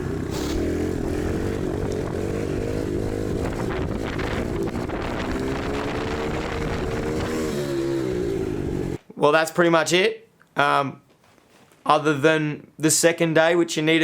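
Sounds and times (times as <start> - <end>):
vehicle engine running: 0.0 - 9.0.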